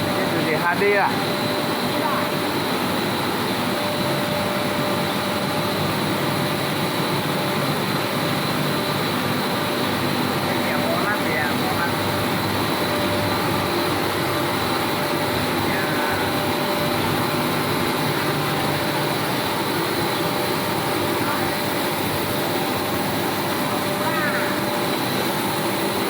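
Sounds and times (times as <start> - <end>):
factory machinery running: 0.0 - 26.0
machine humming and whining: 0.0 - 26.0.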